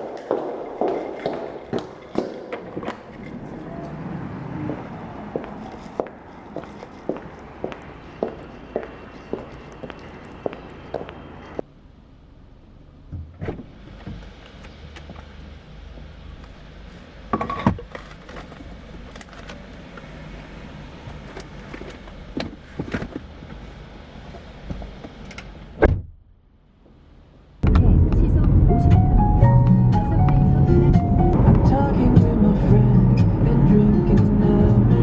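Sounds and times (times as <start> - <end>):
low steady rumble: 25.6 - 35.0.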